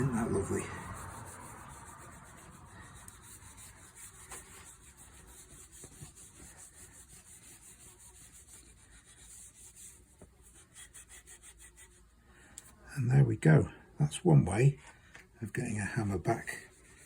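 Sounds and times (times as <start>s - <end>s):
cloth rubbing on wood: 0.0s - 12.0s.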